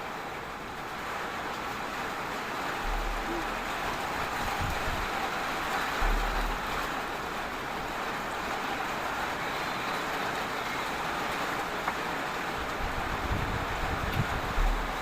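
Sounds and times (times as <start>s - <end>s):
heavy rain hissing: 0.0s - 15.0s
brief low thump: 2.8s - 5.2s, 5.9s - 7.2s.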